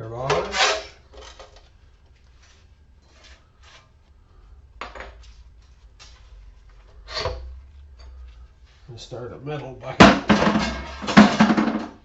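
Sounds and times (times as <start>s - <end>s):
faint low hum: 0.0s - 12.0s
metal scrap clinking and clattering: 10.0s - 12.0s.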